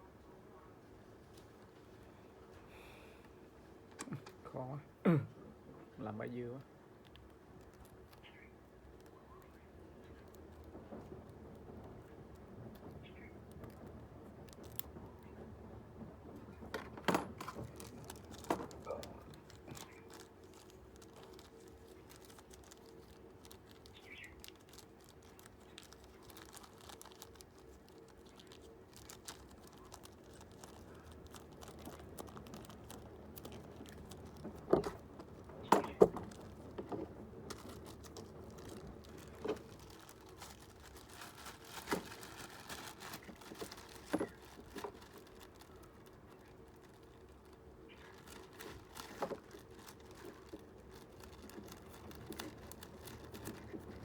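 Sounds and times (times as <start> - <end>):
small hard parts clicking and rattling: 7.0 - 54.0.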